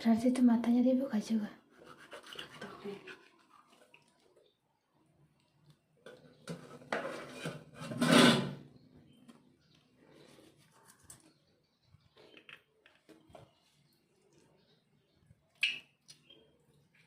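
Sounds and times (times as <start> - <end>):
dishes and utensils clattering: 6.1 - 8.7.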